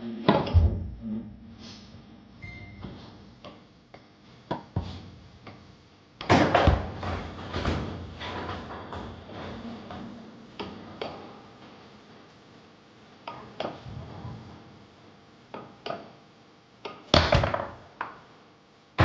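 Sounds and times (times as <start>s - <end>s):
foosball ball knocking: 6.2s - 9.4s, 17.2s - 17.8s.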